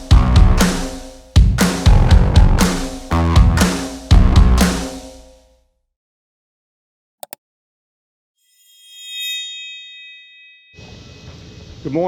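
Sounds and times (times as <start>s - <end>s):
bell-like chime ringing: 8.4s - 11.0s.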